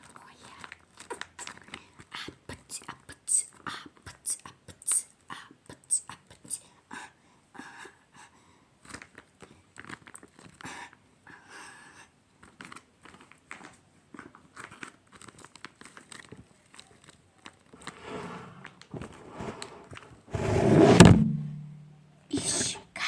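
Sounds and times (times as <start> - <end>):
squishy toy crinkling: 8.9 - 10.6, 12.4 - 17.9.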